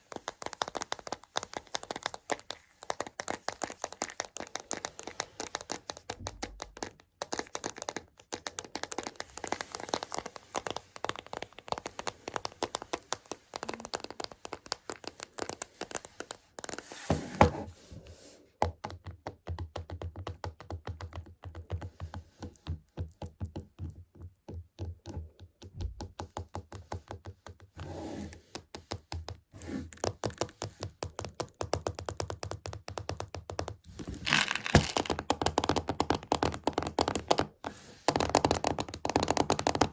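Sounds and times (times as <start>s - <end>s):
chocolate beans rattling in container: 34.0s - 35.2s.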